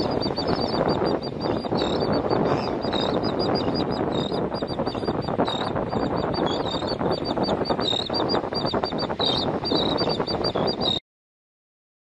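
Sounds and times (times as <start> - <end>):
steady rushing noise: 0.0 - 11.0
terns calling: 0.0 - 11.0.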